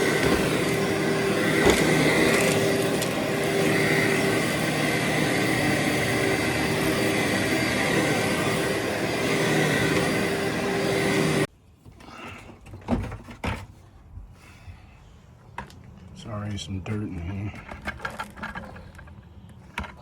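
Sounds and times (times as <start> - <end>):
knocks and handling sounds: 0.0 - 0.9, 1.5 - 3.8, 17.1 - 20.0
vacuum cleaner whining hum: 0.0 - 11.5.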